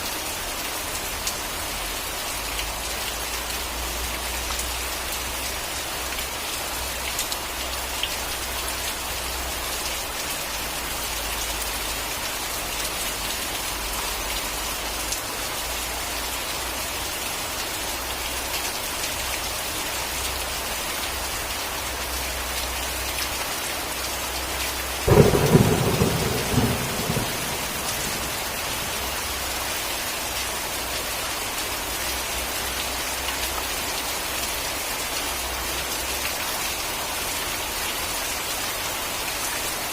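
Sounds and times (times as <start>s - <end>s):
steady rain: 0.0s - 39.9s
thunder clap crackling: 25.1s - 29.3s.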